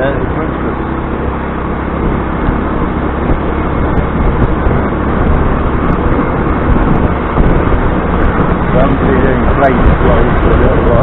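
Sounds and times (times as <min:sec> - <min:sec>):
scooter engine running: 0:00.0 - 0:11.0
wind and road noise: 0:00.0 - 0:11.0.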